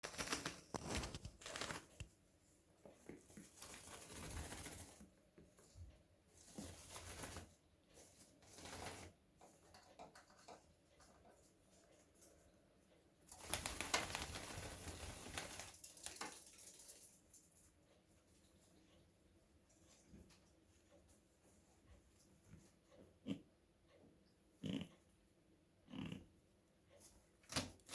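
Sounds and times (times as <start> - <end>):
rodent scratching straw bag: 0.0 - 2.0.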